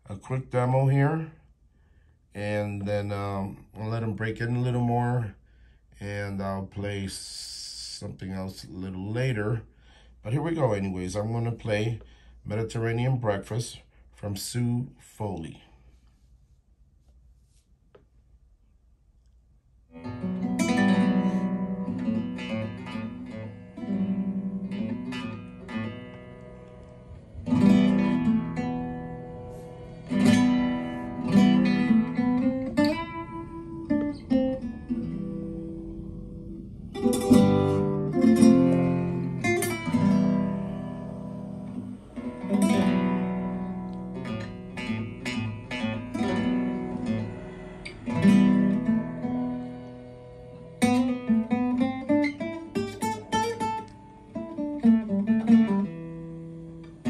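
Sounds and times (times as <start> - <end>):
flamenco guitar music: 19.9 - 57.0.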